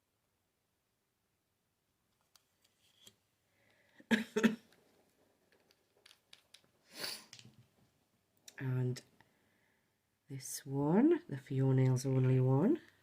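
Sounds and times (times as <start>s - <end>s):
short hiss: 6.9s - 7.4s.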